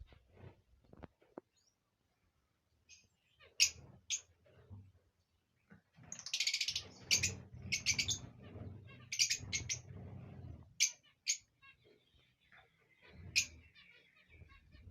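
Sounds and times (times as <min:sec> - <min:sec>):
lovebirds chirping: 0:05.6 - 0:09.9.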